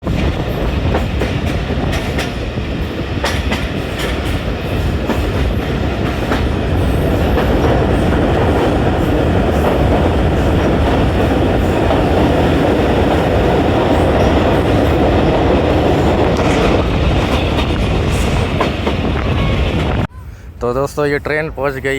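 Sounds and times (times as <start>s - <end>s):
train wheels clattering on rails: 0.0s - 20.1s.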